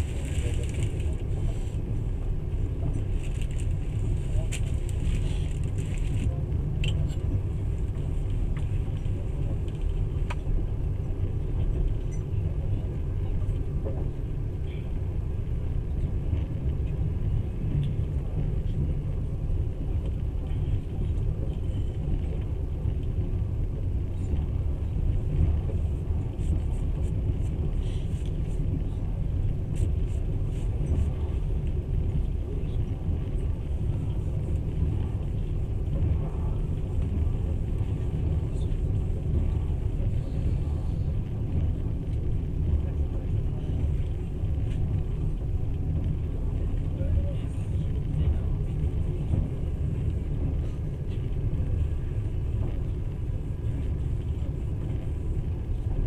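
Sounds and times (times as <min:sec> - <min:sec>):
train rumble from inside carriage: 0:00.0 - 0:56.0.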